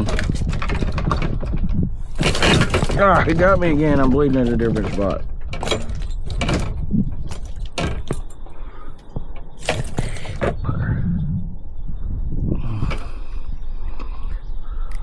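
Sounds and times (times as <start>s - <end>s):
low rumble: 9.2s - 14.7s.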